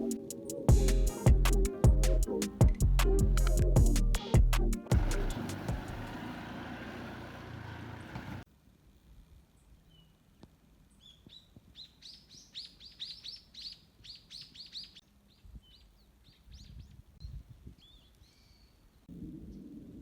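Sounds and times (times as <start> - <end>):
songbird singing: 10.9 - 19.6.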